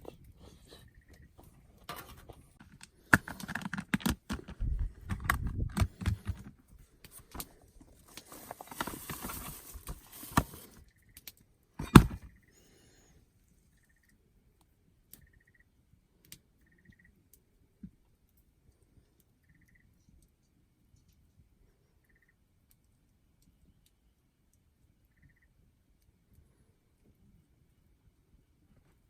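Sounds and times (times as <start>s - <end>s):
rustling: 0.0s - 10.8s
clicks and knocks: 11.8s - 12.3s.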